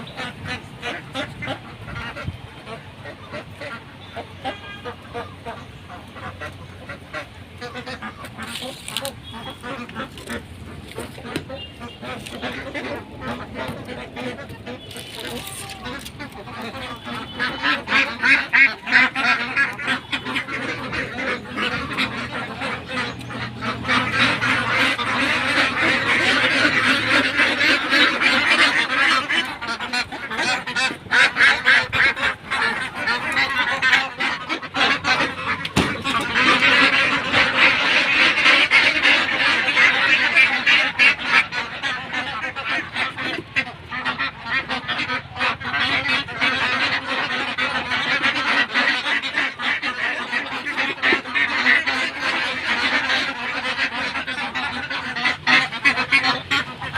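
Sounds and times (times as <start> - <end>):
ducks quacking: 0.0 - 56.9.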